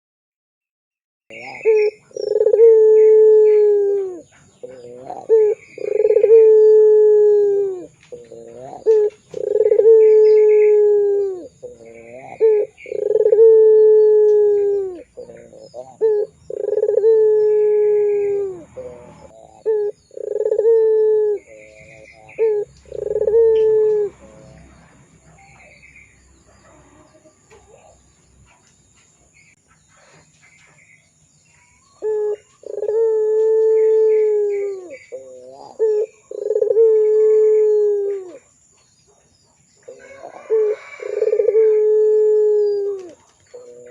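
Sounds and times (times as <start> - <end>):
dove cooing: 1.3 - 24.6, 32.0 - 38.6, 39.8 - 43.9.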